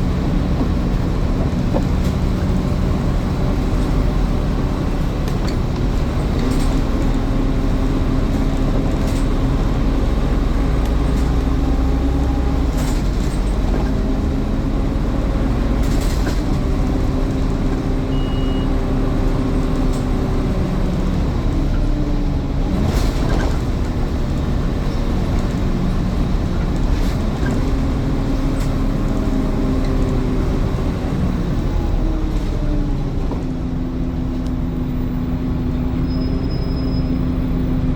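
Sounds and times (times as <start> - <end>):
bus diesel engine: 0.0 - 37.9
high beep: 18.1 - 18.7.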